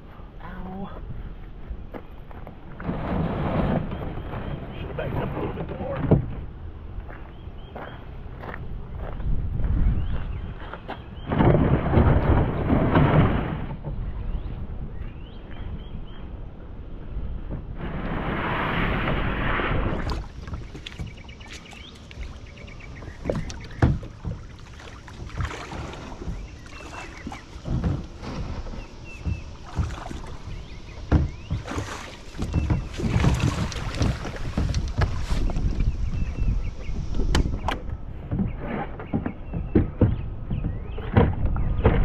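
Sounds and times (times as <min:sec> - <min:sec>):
wind on microphone: 0:08.2 - 0:42.0
water splashing against kayak hull: 0:17.6 - 0:42.0
knocks against hull: 0:23.0 - 0:36.4, 0:37.2 - 0:42.0.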